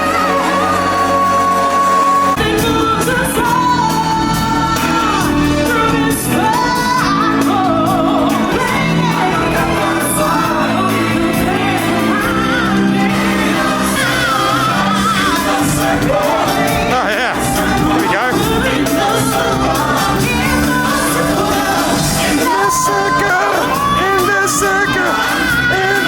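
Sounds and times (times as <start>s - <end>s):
singers with band backing track: 0.0s - 26.0s
crowd whooping: 11.5s - 26.0s.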